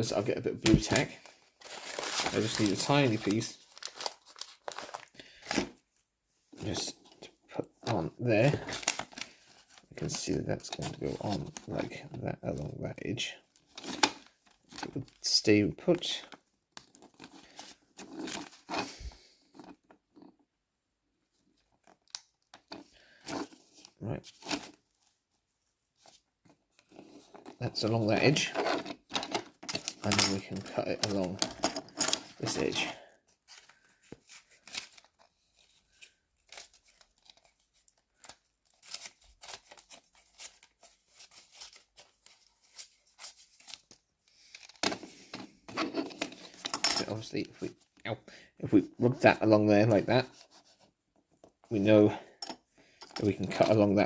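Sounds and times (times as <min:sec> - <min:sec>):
newspaper rustling: 0:00.7 - 0:05.8, 0:32.2 - 0:46.7.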